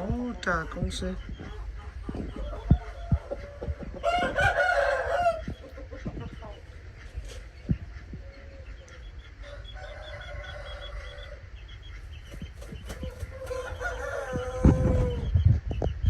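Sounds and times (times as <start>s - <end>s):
rooster crowing: 2.6s - 5.5s, 9.4s - 11.4s, 13.1s - 15.3s.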